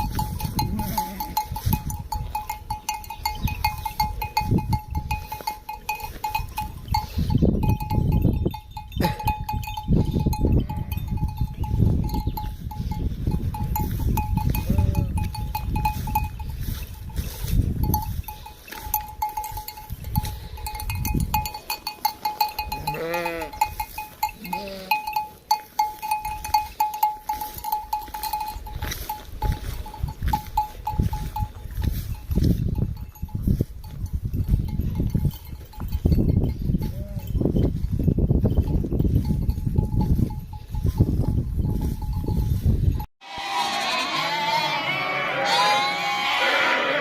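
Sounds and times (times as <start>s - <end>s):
livestock bells ringing: 0.0s - 47.0s
sheep bleating: 14.6s - 15.2s, 22.8s - 23.6s, 24.4s - 25.1s, 43.2s - 47.0s.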